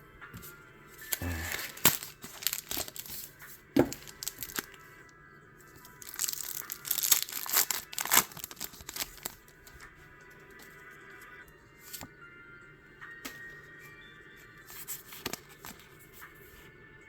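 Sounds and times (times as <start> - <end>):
background music: 0.0 - 17.0
card pack packaging tearing: 1.0 - 4.8, 5.8 - 9.8, 14.7 - 15.9.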